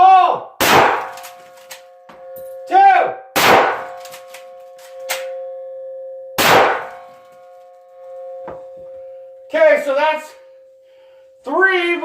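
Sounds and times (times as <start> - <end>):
rifle shot: 0.6 - 1.3, 3.4 - 4.1, 6.4 - 7.0
steady two-note tone: 7.0 - 12.0.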